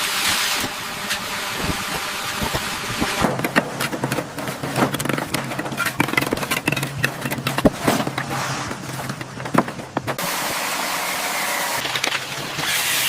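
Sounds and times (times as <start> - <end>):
machine hum: 0.0 - 13.0
knocks and clicks: 3.2 - 10.2.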